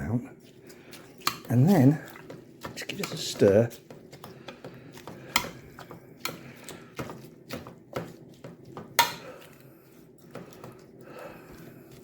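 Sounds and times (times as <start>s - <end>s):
utensil scraping and knocking dish: 0.9s - 9.5s.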